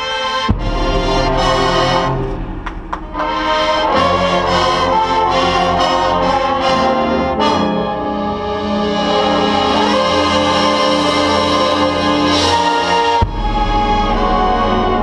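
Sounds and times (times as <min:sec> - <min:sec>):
percussion hits: 0:00.0 - 0:06.6
marching band brass chords: 0:00.0 - 0:15.0.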